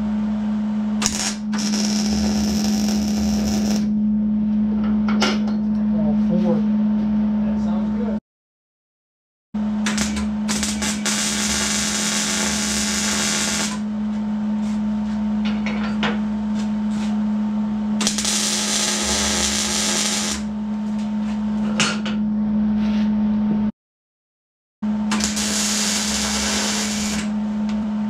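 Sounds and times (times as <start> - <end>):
welder low hum: 0.0 - 4.9, 9.6 - 15.3, 16.3 - 21.6, 24.9 - 28.0
welding arc crackling and hissing: 1.0 - 3.9, 9.8 - 13.9, 18.0 - 20.5, 25.1 - 27.3.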